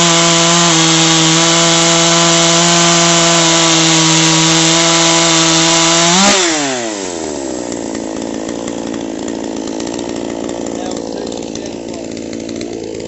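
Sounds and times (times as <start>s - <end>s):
chainsaw engine revving then idling: 0.0s - 13.0s.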